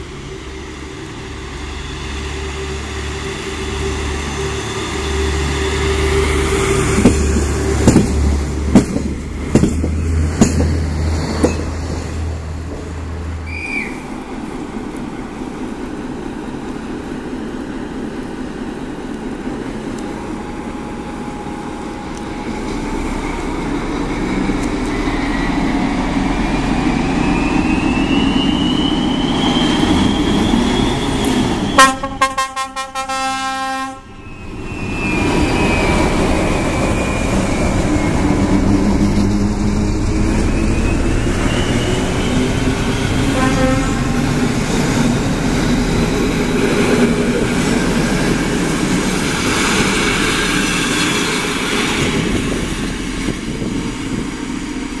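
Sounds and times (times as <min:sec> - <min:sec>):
train rumbling past: 0:00.0 - 0:55.0
train horn blast: 0:31.7 - 0:34.2, 0:43.0 - 0:44.2.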